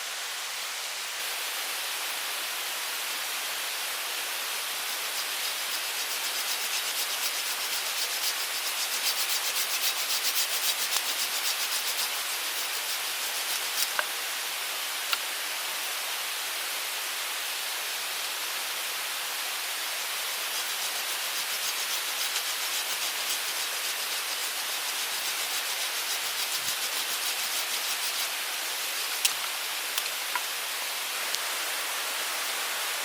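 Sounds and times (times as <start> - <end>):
mountain stream rushing: 0.0 - 33.0
quick scraping strokes: 4.9 - 14.0, 20.4 - 30.1.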